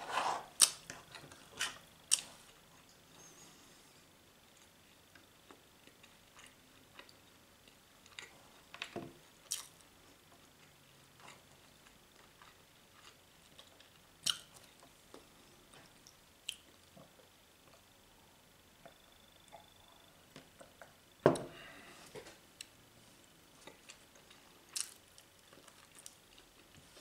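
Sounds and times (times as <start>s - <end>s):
person chewing with wet smacks: 4.5s - 17.9s, 23.5s - 27.0s.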